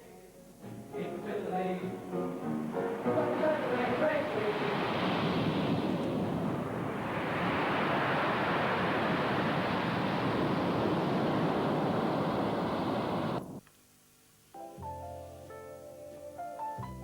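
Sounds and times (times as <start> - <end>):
wind rushing: 2.2 - 13.6
water rushing: 2.3 - 13.6.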